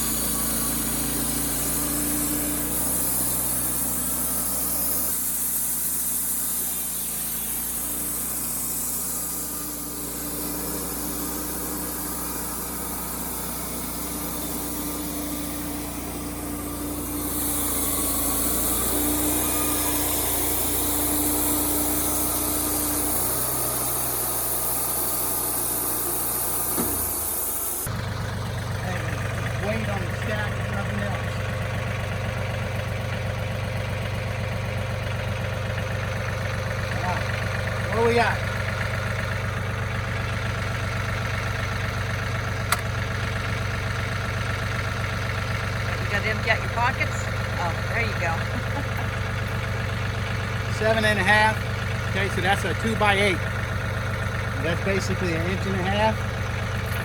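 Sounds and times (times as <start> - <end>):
steady high hiss: 0.0 - 27.9
sawmill engine running: 0.0 - 57.0.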